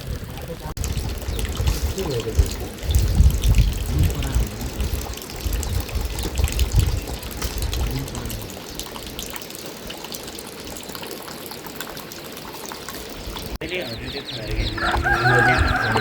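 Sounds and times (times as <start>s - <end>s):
low rumble: 0.0s - 8.6s
water running and splashing: 0.0s - 16.0s.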